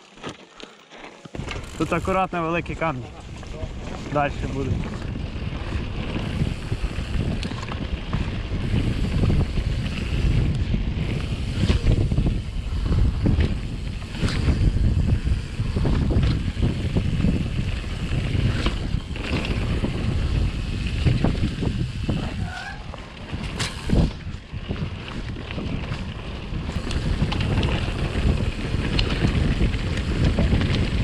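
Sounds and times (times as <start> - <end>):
mountain bike rattling over rocks: 0.0 - 31.0
wind buffeting microphone: 1.4 - 31.0.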